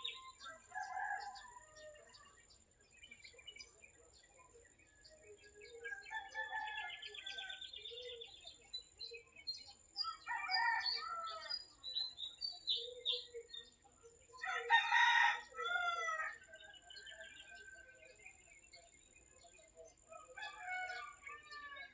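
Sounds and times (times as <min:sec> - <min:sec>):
small birds chirping: 0:00.0 - 0:21.9
rooster crowing: 0:00.4 - 0:02.2, 0:05.9 - 0:07.7, 0:14.4 - 0:16.4, 0:20.1 - 0:21.9.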